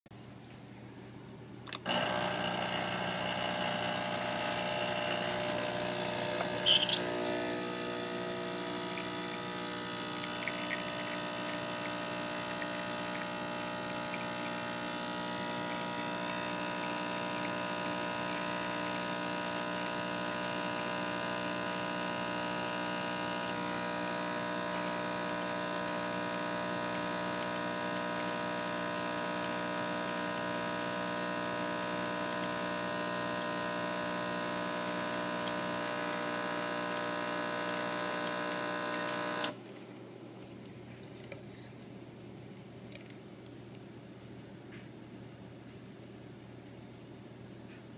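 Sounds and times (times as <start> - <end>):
espresso machine pump buzzing: 1.7 - 39.6.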